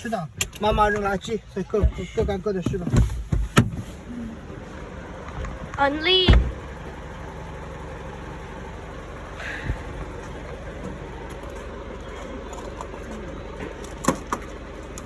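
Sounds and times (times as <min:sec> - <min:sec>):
engine hum: 0:00.0 - 0:15.0
short clunk: 0:06.3 - 0:06.7.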